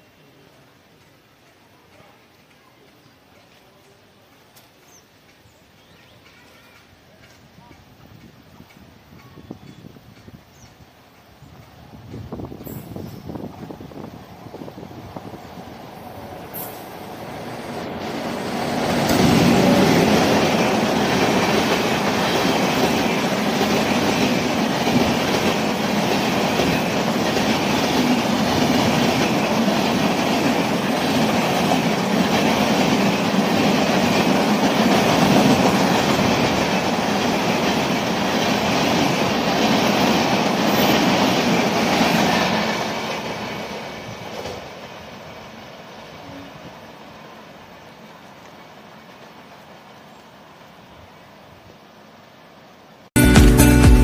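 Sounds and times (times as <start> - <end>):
train passing at speed: 0.0 - 53.2
wheels clacking over rail joints: 15.2 - 46.0.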